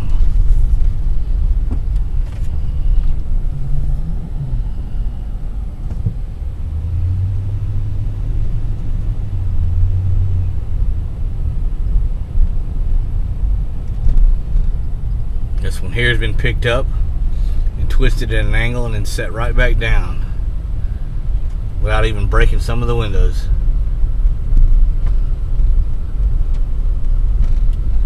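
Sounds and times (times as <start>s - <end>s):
low hum: 0.0s - 21.8s
car engine and road noise: 0.0s - 28.0s.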